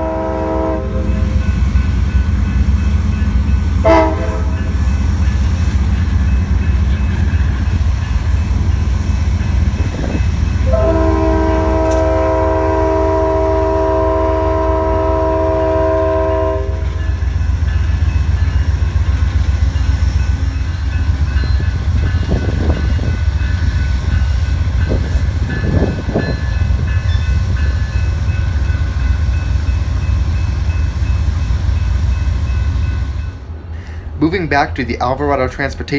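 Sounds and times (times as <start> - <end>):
locomotive air horn blast: 0.0 - 1.4, 3.8 - 4.7, 10.6 - 17.0
diesel locomotive rumbling: 0.0 - 35.9.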